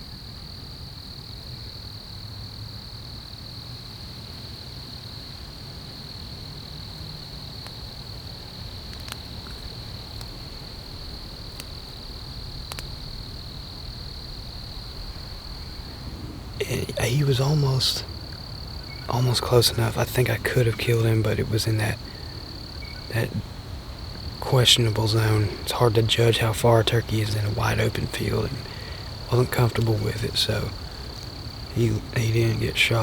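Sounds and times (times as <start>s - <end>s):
faint clicks: 8.8s - 10.5s, 11.4s - 12.0s, 12.6s - 13.2s
high-pitched insect trill: 16.6s - 33.0s.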